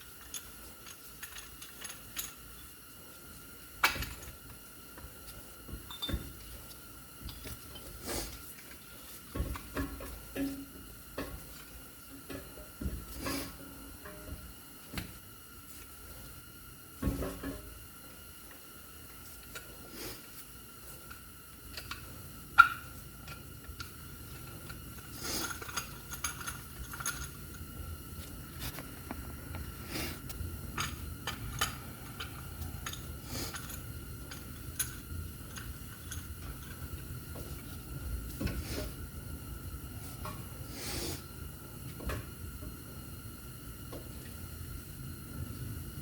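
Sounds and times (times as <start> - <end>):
faint steady whine: 0.0 - 46.0
low hum: 20.8 - 46.0.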